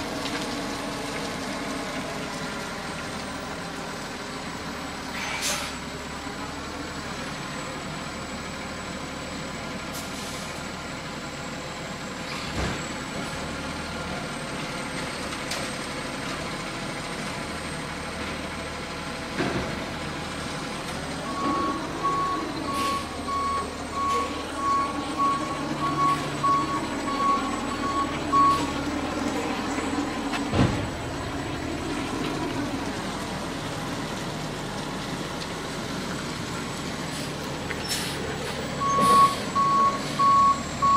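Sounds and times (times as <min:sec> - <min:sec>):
garbage truck engine running: 0:00.0 - 0:40.9
reversing alarm beeping: 0:21.2 - 0:30.4, 0:38.7 - 0:40.9.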